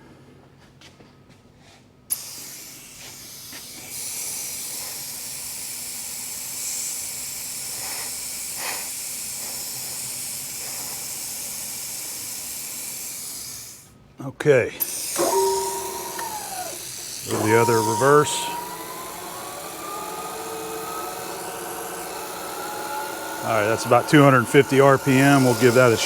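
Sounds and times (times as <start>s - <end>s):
mist coolant nozzle hissing: 14.8s - 26.0s.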